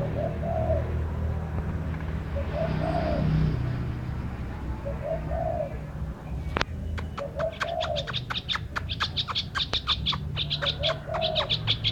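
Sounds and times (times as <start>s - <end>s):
dove cooing: 0.0s - 1.0s, 2.4s - 3.5s, 4.8s - 6.0s, 7.0s - 11.9s
bird chirping fast: 6.4s - 11.9s.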